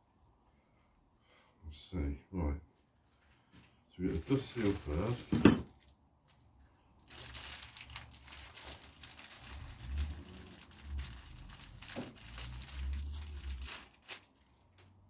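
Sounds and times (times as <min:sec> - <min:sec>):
plastic packaging crinkling: 0:07.1 - 0:15.0.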